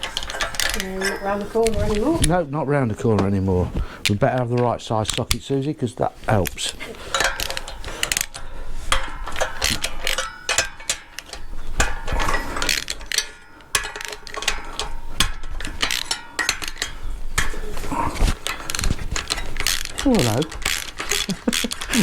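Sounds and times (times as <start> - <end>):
ratchet wrench clicking: 7.1 - 17.6, 18.4 - 22.0.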